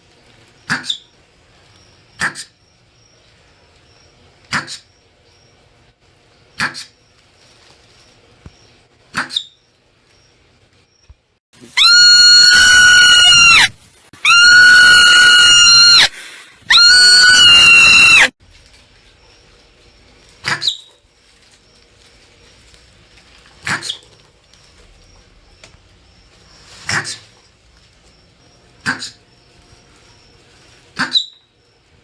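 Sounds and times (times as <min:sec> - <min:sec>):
marmot screaming: 0:11.6 - 0:18.3.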